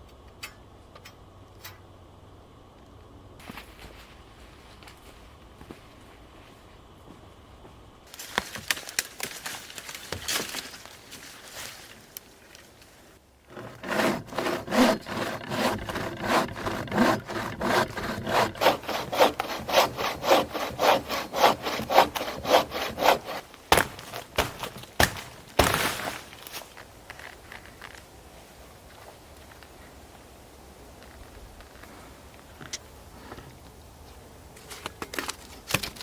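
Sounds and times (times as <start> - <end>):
hand saw cutting wood: 13.5 - 26.3.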